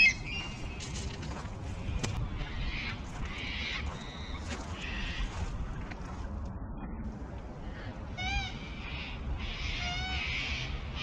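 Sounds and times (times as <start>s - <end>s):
wind rumbling on microphone: 0.0s - 11.0s
rasping bird calls: 8.1s - 11.0s.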